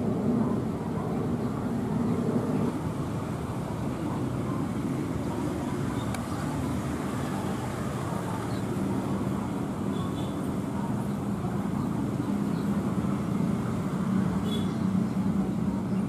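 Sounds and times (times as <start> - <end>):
aircraft engines rumbling: 0.0 - 16.0.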